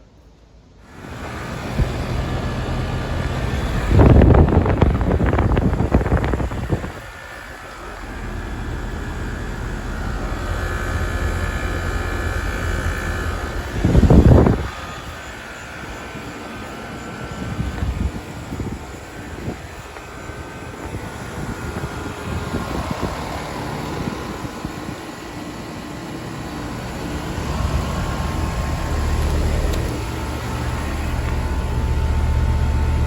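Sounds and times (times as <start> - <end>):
air conditioner unit humming: 0.0 - 33.0
faint whining tones: 0.0 - 33.0
loud rushes of noise: 0.8 - 25.0.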